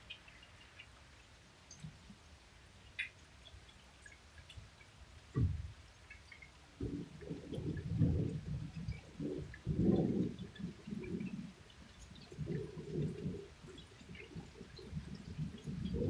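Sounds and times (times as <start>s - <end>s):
rolling thunder rumble: 6.8s - 11.6s.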